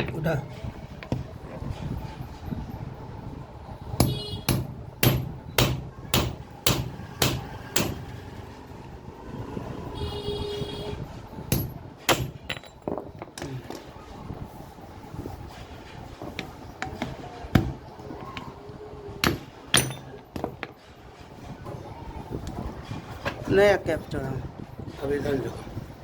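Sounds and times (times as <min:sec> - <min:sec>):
hammer striking chisel on metal: 0:04.0 - 0:08.2, 0:11.5 - 0:13.5, 0:16.2 - 0:18.5, 0:19.2 - 0:20.8.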